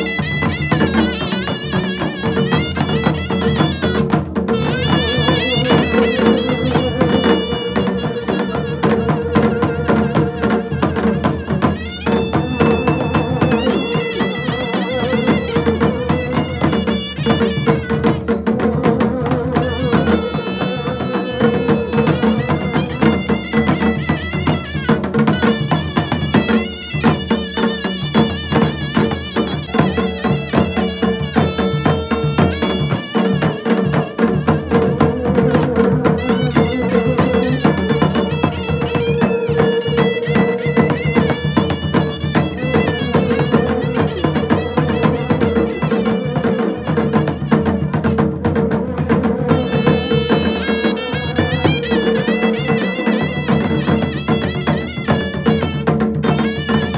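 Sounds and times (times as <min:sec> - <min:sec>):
ornamented melody: 0:00.0 - 0:18.2
fast dense drumming: 0:00.0 - 0:56.9.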